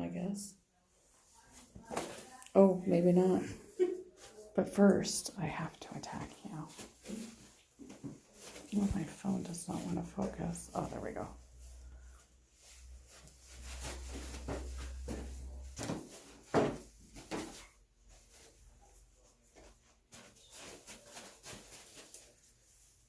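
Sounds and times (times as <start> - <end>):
soft knocks and rustles: 6.1 - 9.2, 13.0 - 22.4
puppies scuffling: 12.7 - 22.6.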